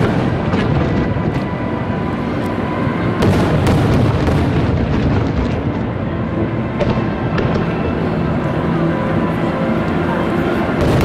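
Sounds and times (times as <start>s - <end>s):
fireworks booming: 0.0s - 2.0s, 2.9s - 8.2s, 10.7s - 11.0s
fireworks bangs and crackles: 0.0s - 8.8s, 10.5s - 11.0s.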